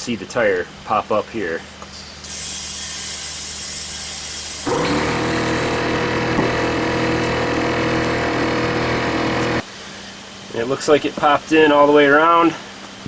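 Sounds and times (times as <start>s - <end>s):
compressed air hissing into tire: 1.7s - 5.8s
air compressor motor running: 2.2s - 9.7s.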